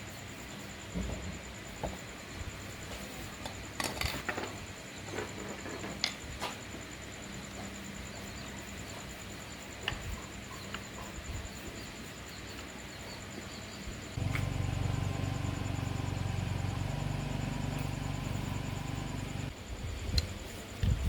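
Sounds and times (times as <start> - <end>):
steady low hum: 13.9 - 19.6.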